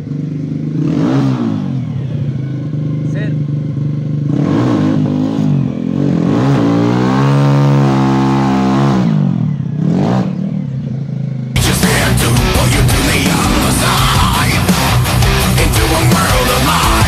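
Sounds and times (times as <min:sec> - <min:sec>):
engine revving: 0:00.0 - 0:17.0
loud heavy music: 0:11.6 - 0:17.0.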